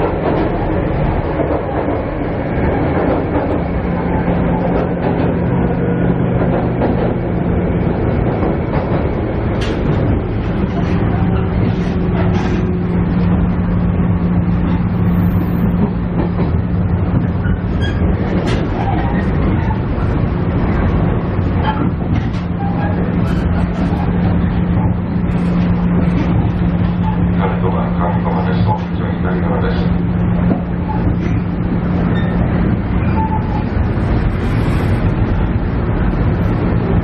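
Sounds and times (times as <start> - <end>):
diesel engine hum: 0.0 - 37.0
train wheels rumbling on rails: 0.0 - 37.0.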